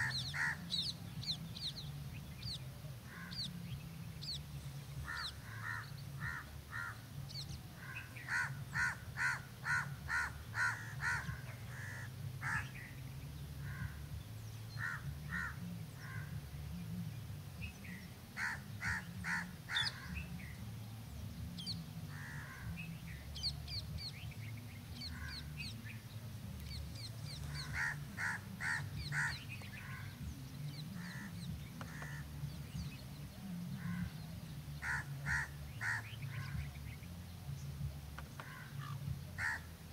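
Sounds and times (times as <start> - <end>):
harsh crow-like bird calls: 0.0 - 0.9, 5.0 - 7.0, 7.7 - 12.9, 13.6 - 14.2, 14.8 - 16.4, 18.4 - 20.3, 22.1 - 22.8, 25.0 - 25.8, 27.3 - 32.6, 33.8 - 34.2, 34.8 - 36.7, 38.2 - 39.8
small birds chirping: 0.0 - 39.9
steady low rumble: 0.0 - 39.9.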